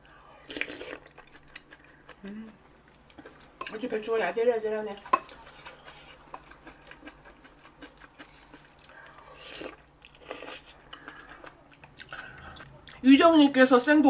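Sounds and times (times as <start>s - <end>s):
soft chewing: 0.0s - 3.8s, 4.9s - 13.0s.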